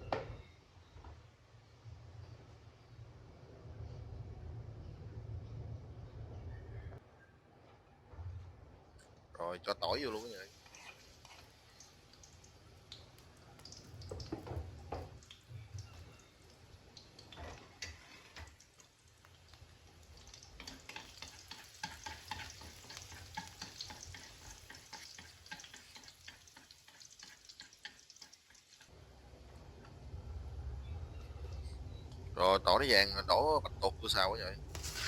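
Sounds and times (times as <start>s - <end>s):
garlic sizzling in hot oil: 10.1s - 29.0s, 34.7s - 35.0s.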